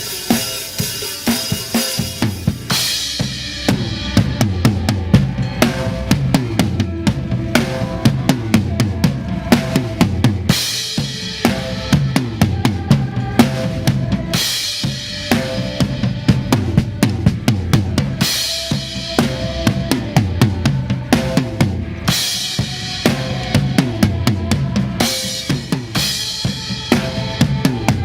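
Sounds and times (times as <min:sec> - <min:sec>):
cymbal crash: 0:00.0 - 0:17.4
drum kit playing: 0:00.0 - 0:28.0
recorded worship song: 0:00.0 - 0:28.0.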